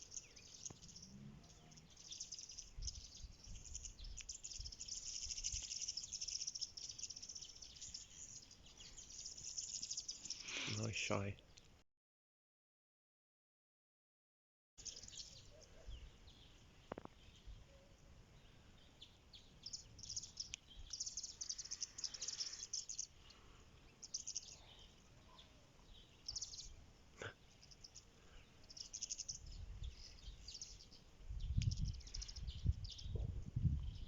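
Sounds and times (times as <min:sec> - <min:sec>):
small birds trilling: 0:00.0 - 0:11.7, 0:14.8 - 0:34.0.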